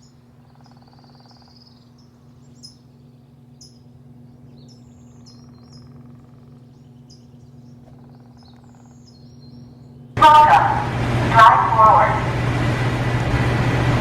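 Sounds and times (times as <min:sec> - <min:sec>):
small birds chirping: 0:00.0 - 0:10.6
low machine hum: 0:00.0 - 0:14.0.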